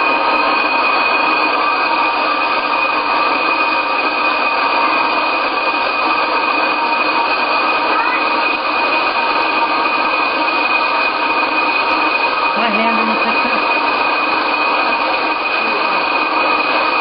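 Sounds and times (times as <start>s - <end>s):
helicopter transmission whine: 0.0s - 17.0s.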